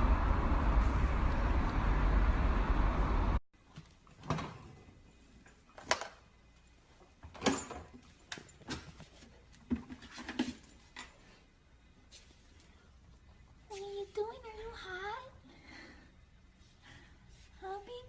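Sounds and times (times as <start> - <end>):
steady noise: 0.0 - 3.4.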